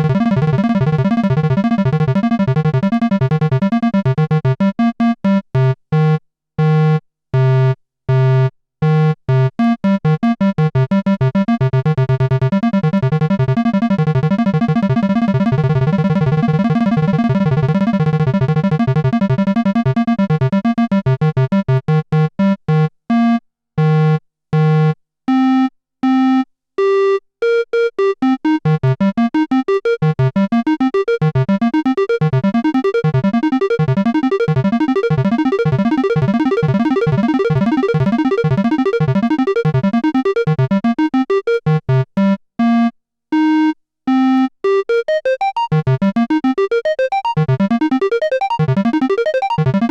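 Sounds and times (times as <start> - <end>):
synthesizer arpeggio: 0.0 - 4.5, 11.3 - 20.7, 29.7 - 41.7, 44.9 - 49.9.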